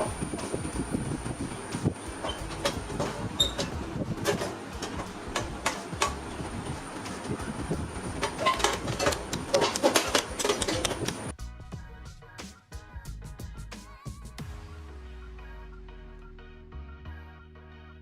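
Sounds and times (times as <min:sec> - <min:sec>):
music: 0:00.0 - 0:18.0
metallic clicks and rattles: 0:02.2 - 0:11.3.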